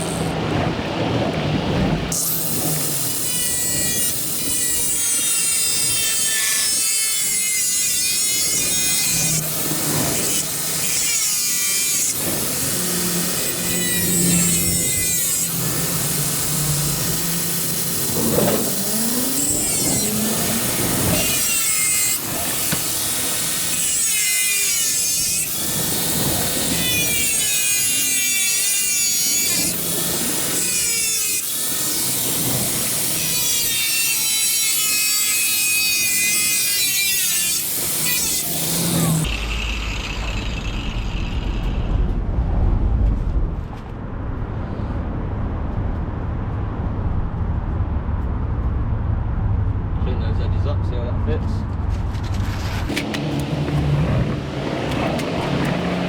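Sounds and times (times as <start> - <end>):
power tool cutting sheet steel: 0.0 - 0.4, 2.1 - 42.1, 52.3 - 56.0.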